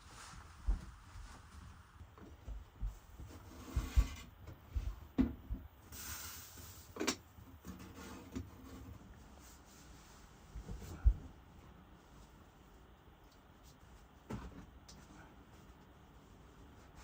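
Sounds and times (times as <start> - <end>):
short hiss: 5.9 - 6.9.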